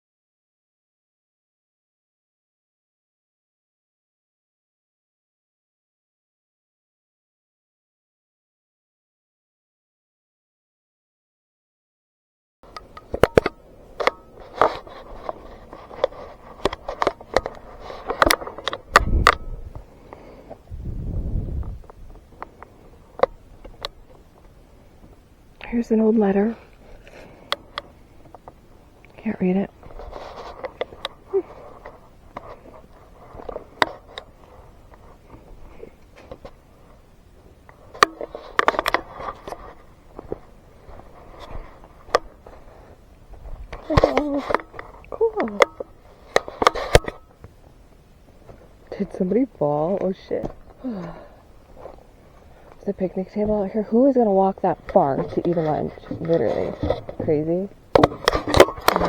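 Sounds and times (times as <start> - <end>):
sharp clicks and crackles: 12.7 - 20.6, 37.6 - 42.8, 54.8 - 59.0
footsteps on woodland trail: 12.8 - 18.9, 29.7 - 45.2.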